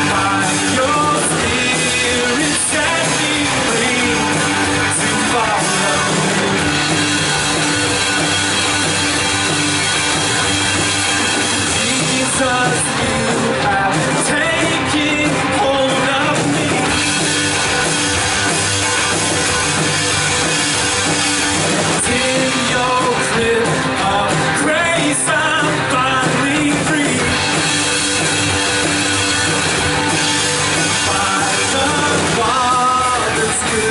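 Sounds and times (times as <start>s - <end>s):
person singing: 0.0s - 7.0s, 11.5s - 17.8s, 21.9s - 27.8s, 30.7s - 33.9s
rock band playing: 0.0s - 33.9s.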